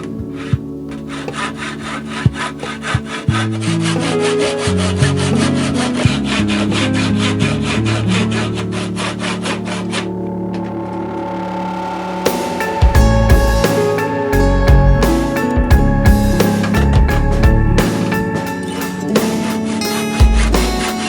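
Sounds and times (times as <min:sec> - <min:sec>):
hand saw cutting wood: 0:00.3 - 0:10.2.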